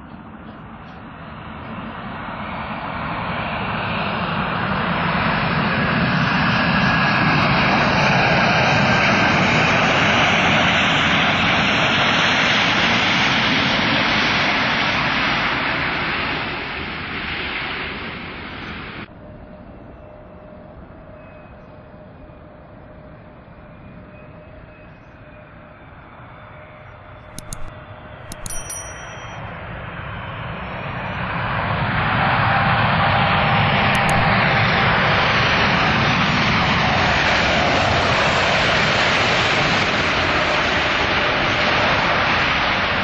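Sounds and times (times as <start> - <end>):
short clicks: 27.3 - 29.4, 33.9 - 34.3.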